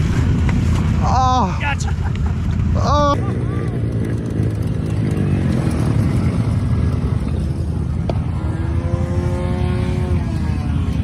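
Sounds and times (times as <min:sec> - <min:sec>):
small engine running and revving: 0:03.2 - 0:11.0.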